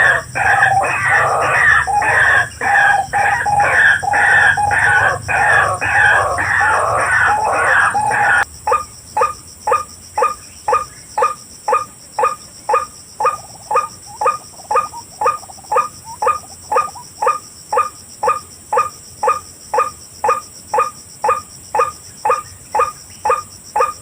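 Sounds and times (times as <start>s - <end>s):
waterhen croaking call: 0.0s - 24.0s.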